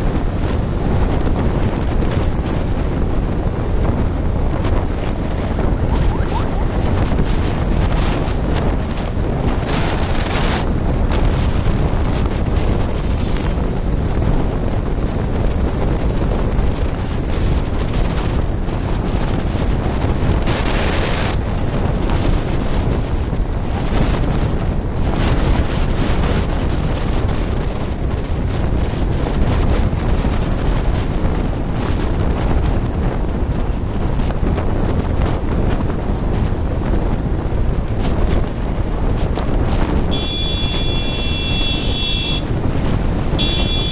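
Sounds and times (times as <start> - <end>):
road noise: 0.0 - 43.9
wind buffeting microphone: 0.0 - 43.9
motorcycle engine: 40.1 - 43.9.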